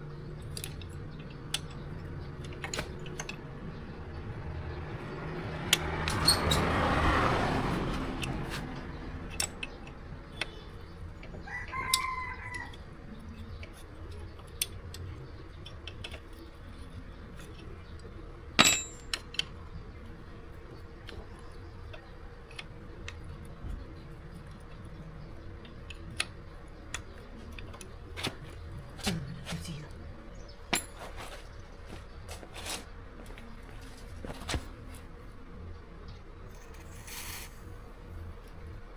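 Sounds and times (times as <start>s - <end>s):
rooster crowing: 11.4s - 12.9s.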